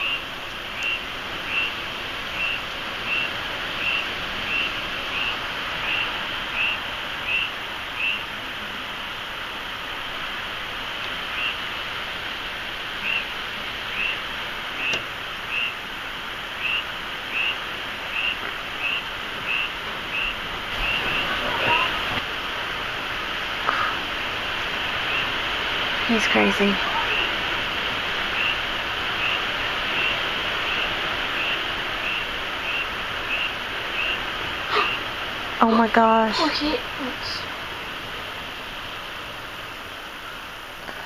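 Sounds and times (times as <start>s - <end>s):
rain: 0.0s - 41.0s
wind: 0.0s - 41.0s.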